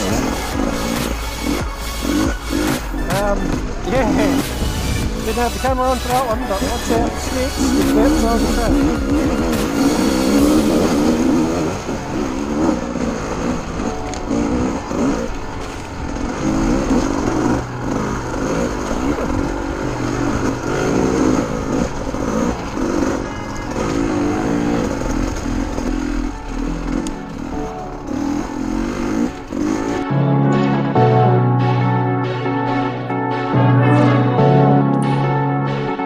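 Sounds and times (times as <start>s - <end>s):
dirt bike engine revving: 0.0s - 30.2s.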